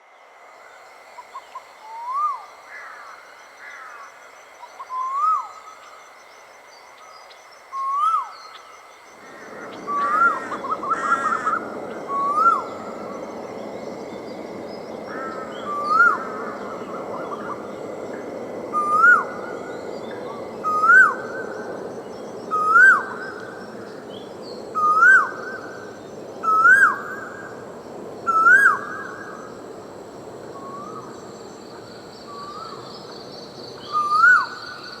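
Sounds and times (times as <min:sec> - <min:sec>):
bird calling: 0:09.2 - 0:14.4, 0:33.8 - 0:35.0
even rushing noise: 0:09.2 - 0:24.9.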